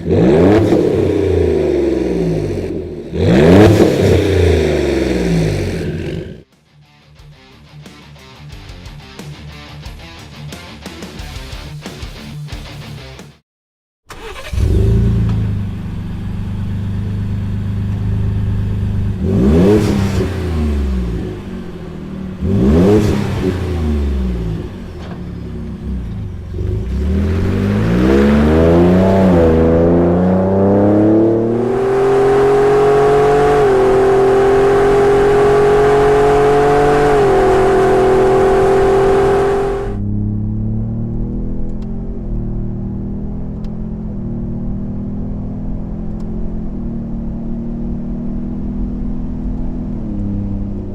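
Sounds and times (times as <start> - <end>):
engine idling and revving: 0.0 - 6.5, 14.1 - 50.9.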